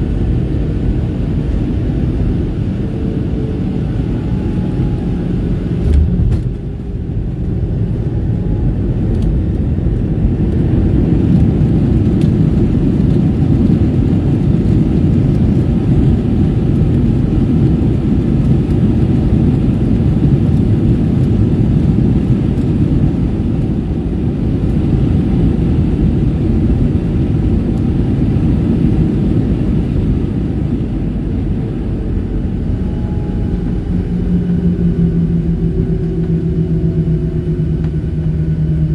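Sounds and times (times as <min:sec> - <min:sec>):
aircraft rolling on runway: 0:00.0 - 0:38.9
jet engines rumbling: 0:00.0 - 0:38.9
brief thump: 0:05.8 - 0:06.8.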